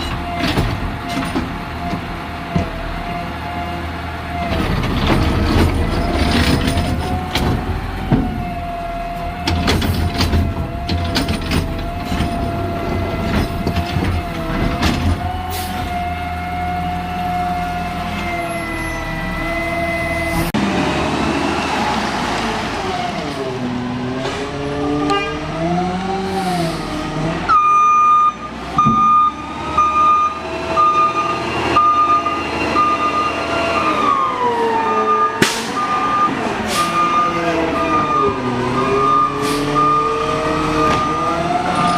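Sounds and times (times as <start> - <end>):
garbage truck engine: 0.0 - 41.9
backup alarm beeping: 27.5 - 34.0, 35.1 - 41.3.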